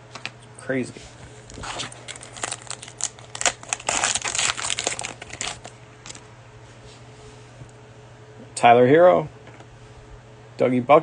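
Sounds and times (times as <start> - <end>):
cellophane wrapper crinkling: 1.3 - 6.2.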